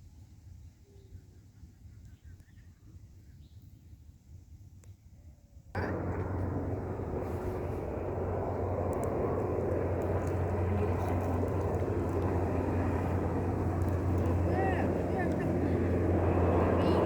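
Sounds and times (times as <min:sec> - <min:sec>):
helicopter engine and rotor: 0:05.8 - 0:17.0.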